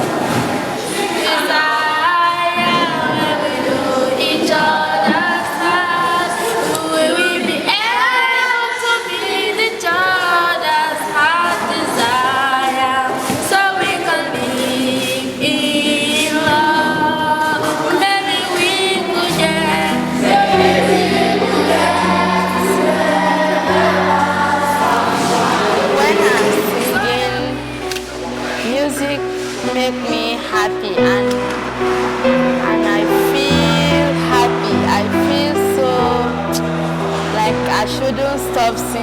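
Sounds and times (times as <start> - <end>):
choir singing: 0.0 - 39.0
low held accompaniment note: 19.3 - 39.0.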